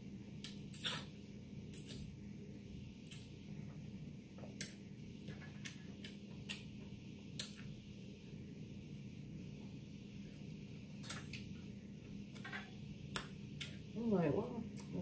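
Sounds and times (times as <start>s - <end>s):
low steady hum: 0.0s - 15.0s
lip smacks and wet clicks: 0.4s - 1.1s, 1.7s - 2.1s, 5.6s - 6.7s, 7.3s - 7.7s, 13.1s - 13.8s.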